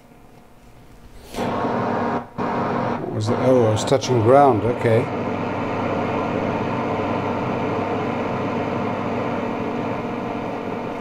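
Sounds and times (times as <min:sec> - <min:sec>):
faint mains hum: 0:00.0 - 0:11.0
radio static hiss: 0:01.3 - 0:11.0.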